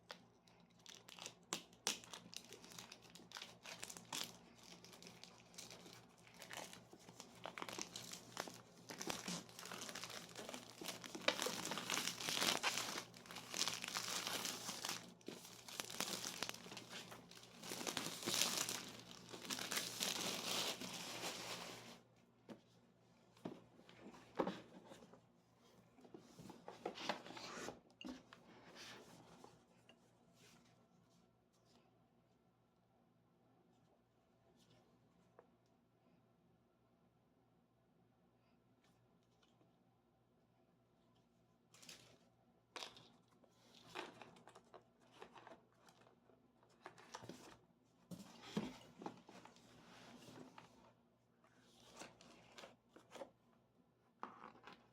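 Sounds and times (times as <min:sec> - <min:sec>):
packaging rubbing and rustling: 0:00.8 - 0:22.0.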